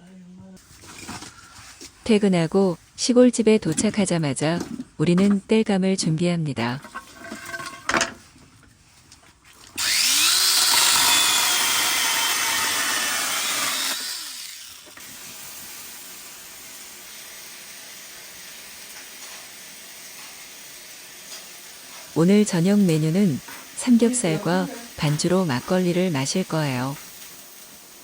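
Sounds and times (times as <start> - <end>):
power saw cutting firewood: 9.8 - 28.0.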